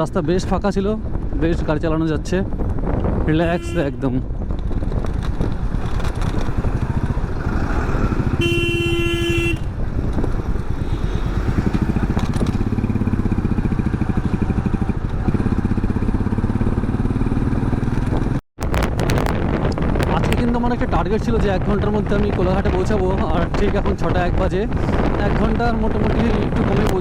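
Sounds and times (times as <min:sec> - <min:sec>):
motorcycle engine at speed: 0:02.6 - 0:20.1
vehicle horn: 0:03.4 - 0:04.0, 0:08.3 - 0:09.8, 0:10.8 - 0:11.6.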